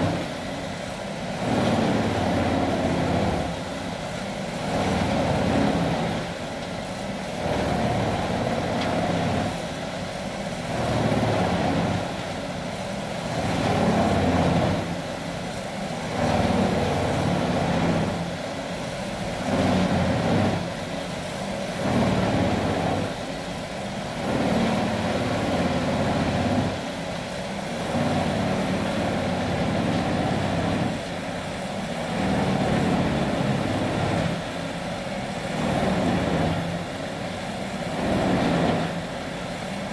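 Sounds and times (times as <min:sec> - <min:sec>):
wood grinder grinding logs: 0:01.3 - 0:06.7, 0:07.3 - 0:09.8, 0:10.5 - 0:12.1, 0:13.2 - 0:15.0, 0:16.0 - 0:18.3, 0:19.2 - 0:20.7, 0:21.7 - 0:23.2, 0:24.1 - 0:26.9, 0:27.7 - 0:31.2, 0:32.0 - 0:34.5, 0:37.8 - 0:39.3.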